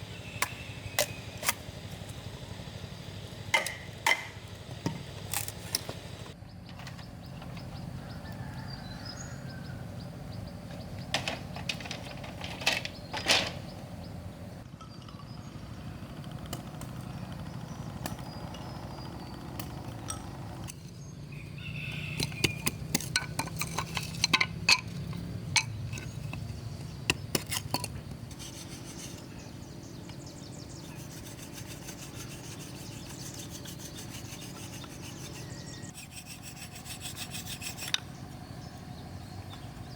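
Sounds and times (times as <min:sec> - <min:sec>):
rubbing and scraping on bamboo: 0:11.2 - 0:13.6, 0:21.7 - 0:29.6, 0:30.7 - 0:38.2.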